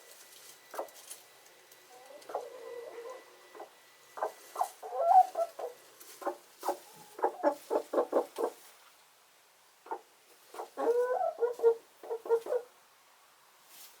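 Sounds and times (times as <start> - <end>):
hens clucking: 1.9 - 8.7, 9.9 - 12.7.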